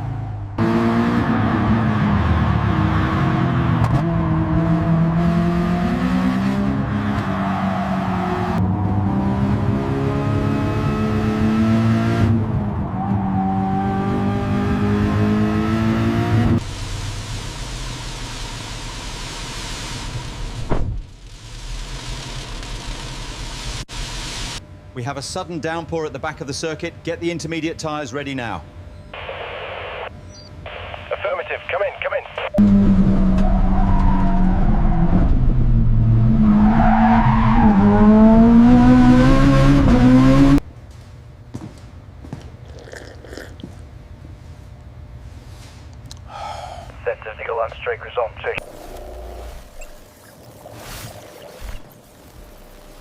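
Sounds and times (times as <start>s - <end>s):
race car engine revving: 0.0s - 16.6s, 32.6s - 40.6s.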